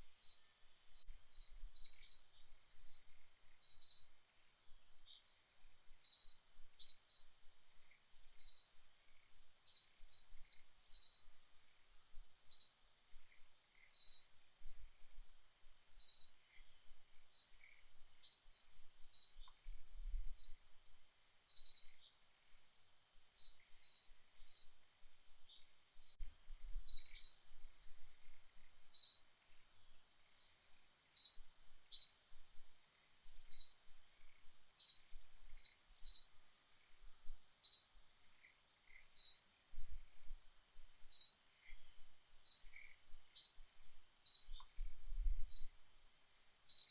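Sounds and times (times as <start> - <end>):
small bird chirping: 0.0 - 14.5, 15.8 - 20.7, 21.4 - 22.3, 23.3 - 45.8, 46.6 - 46.9
faint high hiss: 0.0 - 46.9.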